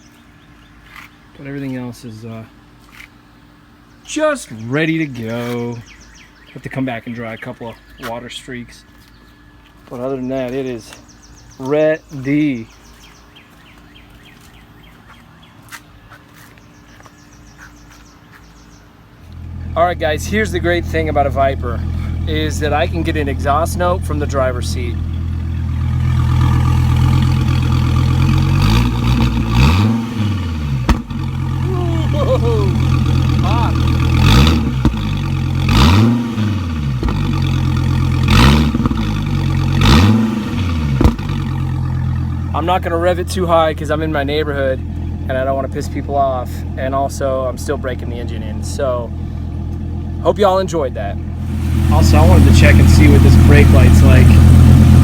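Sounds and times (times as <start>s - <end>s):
bird chirping: 3.0s - 27.1s, 31.6s - 35.0s
car engine idling and revving: 19.0s - 55.0s.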